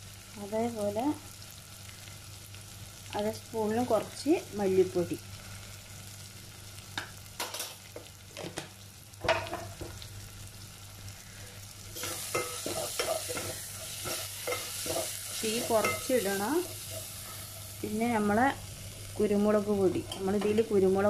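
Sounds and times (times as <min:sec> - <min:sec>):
masala sizzling in oil: 0:00.0 - 0:21.0
spoon scraping pot: 0:12.0 - 0:17.2.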